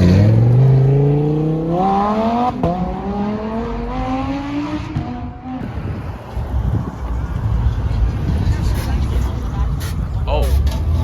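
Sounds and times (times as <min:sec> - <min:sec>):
sports car engine accelerating: 0:00.0 - 0:05.8.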